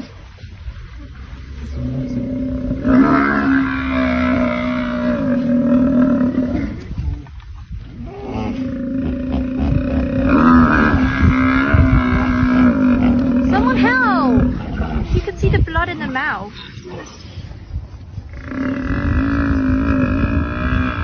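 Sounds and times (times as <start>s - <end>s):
deep animal bellowing: 1.6s - 7.1s, 8.0s - 15.2s, 18.2s - 21.0s.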